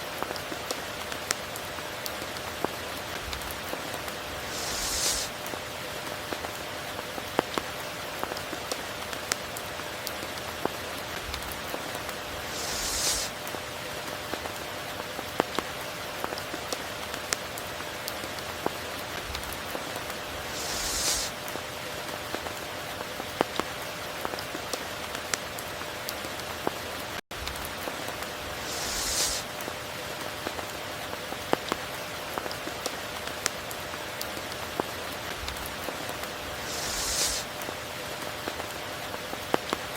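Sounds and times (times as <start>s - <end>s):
steady rain: 0.0s - 39.9s
hissing swell: 4.3s - 5.3s, 12.4s - 13.4s, 20.4s - 21.4s, 28.4s - 29.5s, 36.6s - 37.5s.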